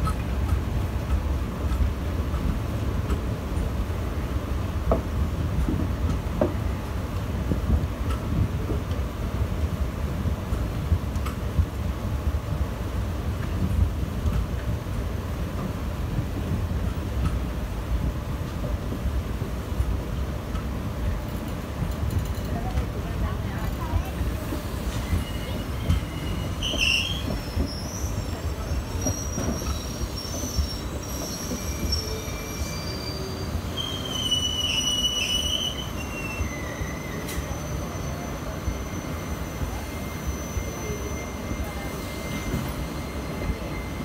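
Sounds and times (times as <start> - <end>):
train wheels rumbling on rails: 0.0 - 44.0
high-pitched wheel squeals: 25.0 - 44.0.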